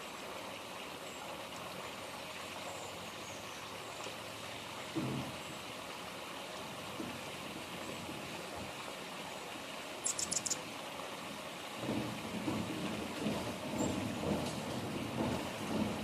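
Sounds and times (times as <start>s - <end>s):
steady outdoor hiss: 0.0s - 16.0s
hummingbird chips: 10.0s - 10.6s.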